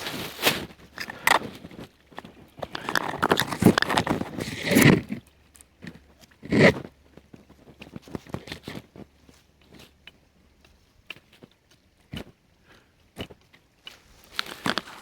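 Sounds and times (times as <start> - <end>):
dry twigs crunching and snapping: 7.3 - 15.0.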